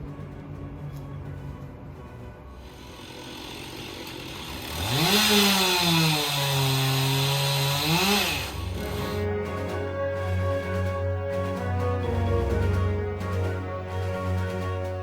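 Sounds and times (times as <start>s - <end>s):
chainsaw revving and cutting: 2.7s - 9.3s.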